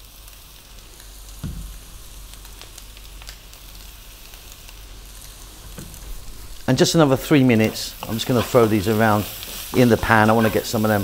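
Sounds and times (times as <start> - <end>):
food sizzling in a wok: 0.0 - 11.0
soft thump: 1.4 - 1.8, 5.6 - 6.3.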